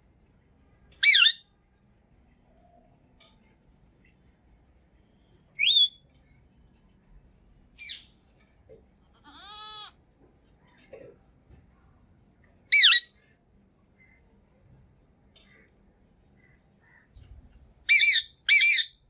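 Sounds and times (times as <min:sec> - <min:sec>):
parrot shrieking: 0:01.0 - 0:01.4, 0:05.6 - 0:05.9, 0:12.7 - 0:13.1, 0:17.9 - 0:19.0.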